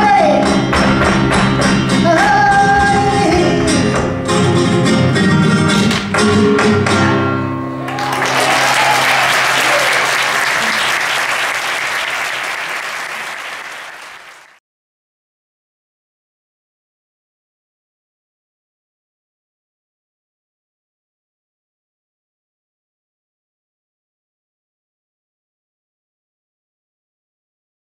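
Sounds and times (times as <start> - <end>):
guitar: 0.0 - 10.8
audience applauding: 7.8 - 14.6.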